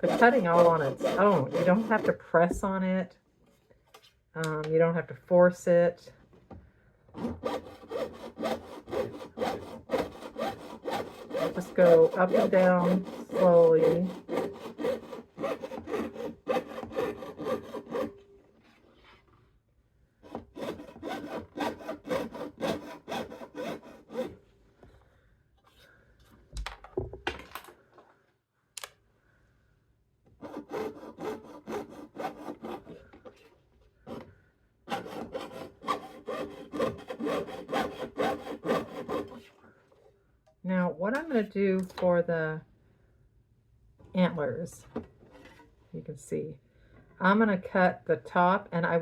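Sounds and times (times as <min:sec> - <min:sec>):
jeweller's saw cutting metal sheet: 0:00.0 - 0:02.2, 0:07.3 - 0:18.1, 0:20.6 - 0:24.4, 0:34.9 - 0:39.5.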